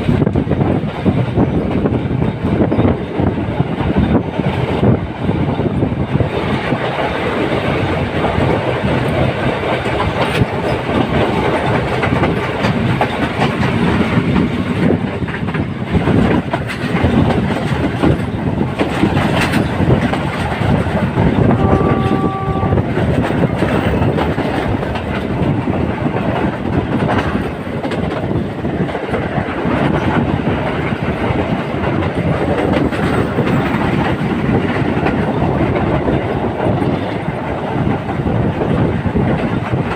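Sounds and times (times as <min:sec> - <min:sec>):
train wheels rumbling on rails: 0:00.0 - 0:39.9
train horn note: 0:21.4 - 0:23.1.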